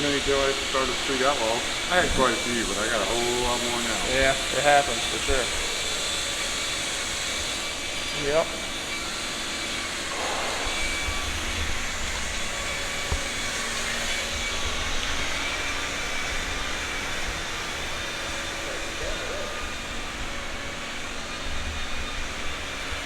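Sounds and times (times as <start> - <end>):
machine rumble and hiss: 0.0 - 23.0.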